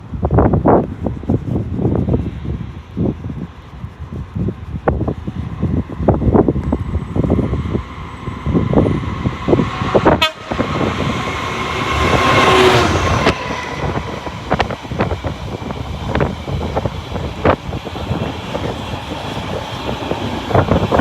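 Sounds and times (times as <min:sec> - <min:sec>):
loud rushing with faint tone: 0:00.0 - 0:21.0
freight train wheels knocking on rails: 0:07.3 - 0:21.0.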